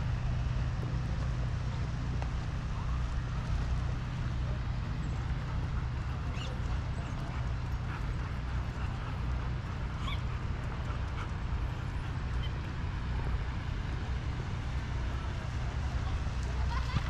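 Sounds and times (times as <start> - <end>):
steady low rumble: 0.0 - 17.0
dog whimpering and yipping: 10.0 - 10.3.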